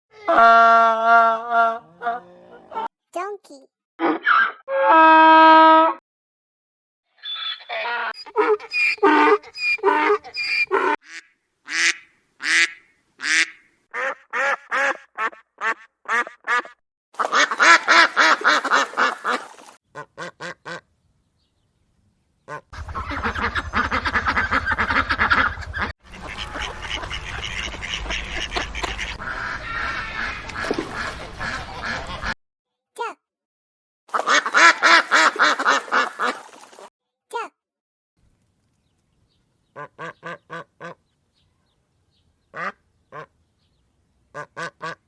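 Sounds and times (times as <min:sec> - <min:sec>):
ducks quacking: 0:07.7 - 0:20.8, 0:22.5 - 0:32.4, 0:34.1 - 0:36.9.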